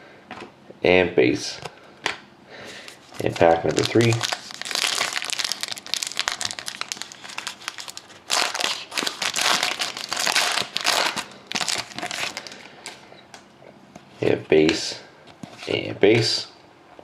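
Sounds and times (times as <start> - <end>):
wrapper tearing and crinkling: 3.0 - 12.7.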